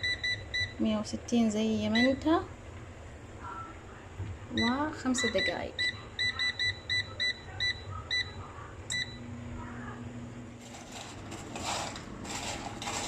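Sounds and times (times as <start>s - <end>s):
rustling handling noise: 10.6s - 13.0s.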